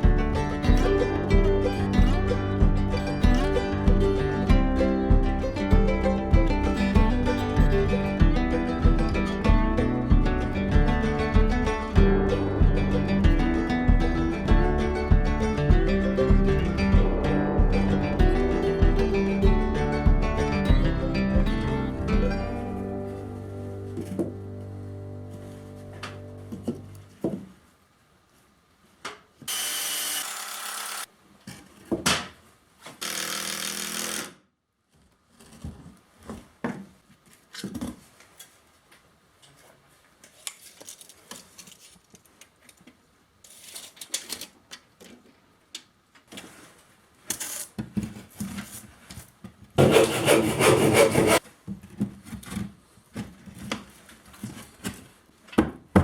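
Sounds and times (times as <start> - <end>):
sawing on wood: 49.8 - 51.4
boards and tools clattering: 49.8 - 55.0.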